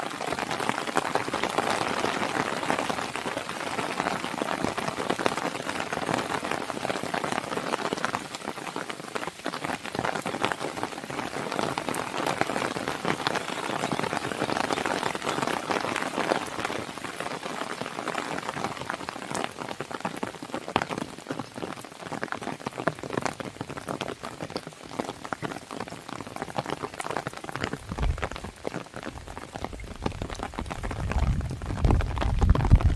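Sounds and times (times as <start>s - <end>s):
rain pattering on a window: 0.0s - 32.9s
fire crackling and popping: 26.9s - 32.9s
low thump: 27.9s - 28.5s.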